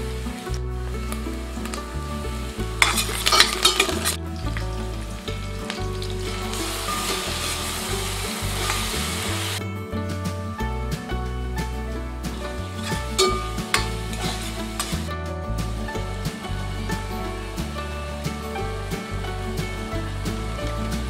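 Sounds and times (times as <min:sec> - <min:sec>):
ladle stirring: 0:00.0 - 0:09.6, 0:12.3 - 0:15.1
oil sizzling in a cooker: 0:00.0 - 0:09.6, 0:11.6 - 0:21.0.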